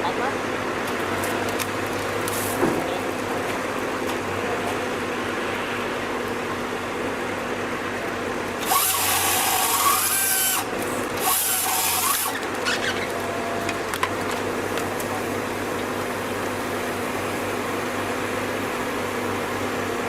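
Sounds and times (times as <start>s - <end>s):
steady engine hum: 0.0s - 20.0s
power saw cutting: 8.6s - 13.3s.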